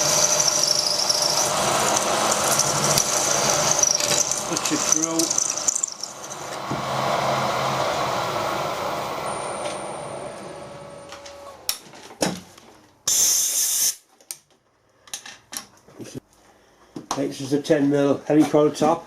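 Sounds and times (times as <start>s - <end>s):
drill running down: 0.0s - 11.7s
short sharp hiss: 13.1s - 14.1s.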